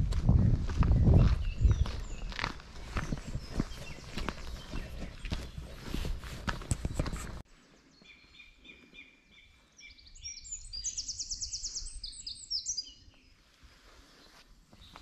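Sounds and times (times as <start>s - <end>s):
songbird trilling song: 0.9s - 5.7s, 7.9s - 13.4s.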